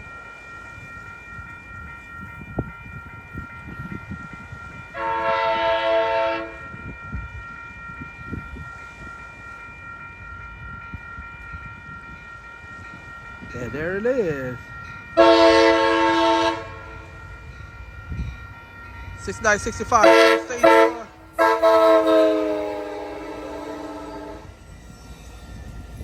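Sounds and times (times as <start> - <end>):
low train rumble: 0.0 - 26.0
train horn blast: 4.9 - 6.6, 15.2 - 17.1, 20.0 - 24.5.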